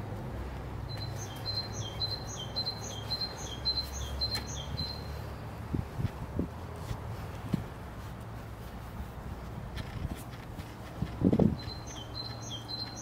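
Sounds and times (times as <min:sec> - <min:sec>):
steady low rumble: 0:00.0 - 0:11.9
small bird calling: 0:00.9 - 0:05.2, 0:11.6 - 0:13.0.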